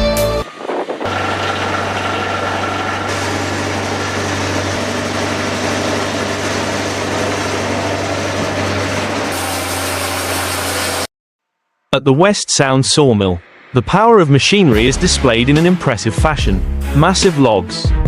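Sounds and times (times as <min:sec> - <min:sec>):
heavy machinery engine drone: 0:00.0 - 0:11.1
mechanical rush: 0:00.3 - 0:11.1, 0:13.0 - 0:15.4.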